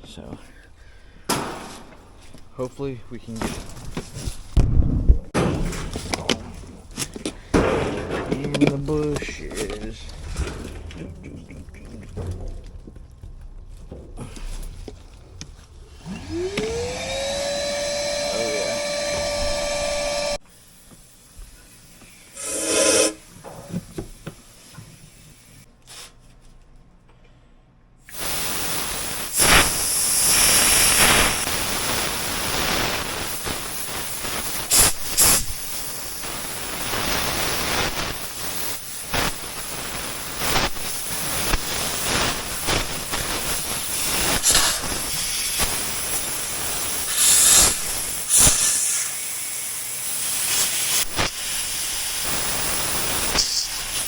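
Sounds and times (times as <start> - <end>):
loud hiss of gas through pipe: 16.0 - 26.2, 28.1 - 54.0.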